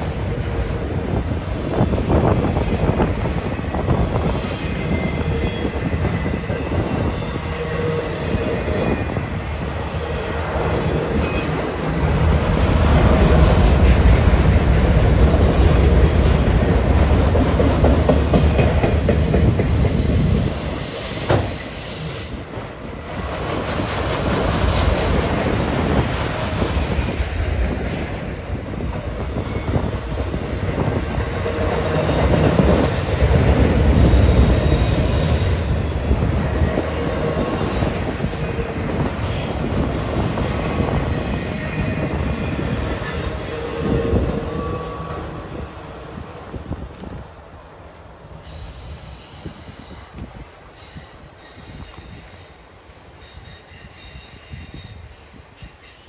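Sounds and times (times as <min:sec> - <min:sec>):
train wheels rumbling and clattering: 0:00.0 - 0:47.6
high-pitched wheel squeal: 0:11.1 - 0:11.8, 0:34.0 - 0:36.8, 0:41.4 - 0:45.6.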